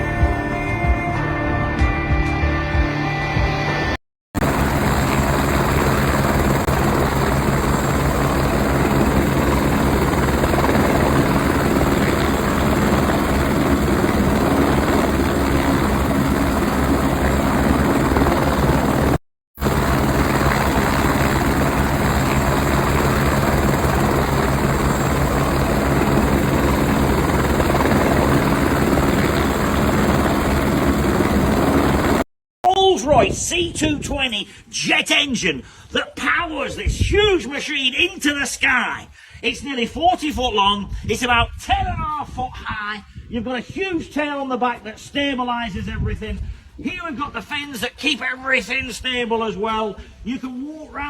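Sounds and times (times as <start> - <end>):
helicopter rotor and engine: 4.4 - 32.3.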